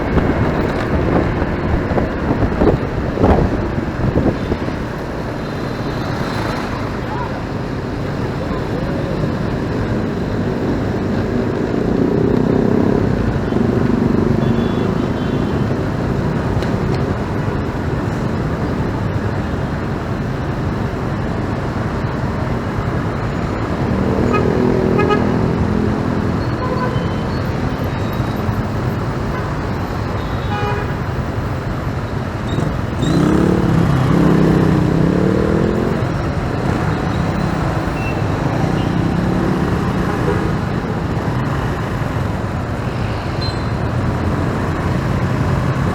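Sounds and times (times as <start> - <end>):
motorcycle engine and road noise: 0.0 - 45.9
vehicles passing: 0.0 - 45.9
horn toots: 24.1 - 27.3.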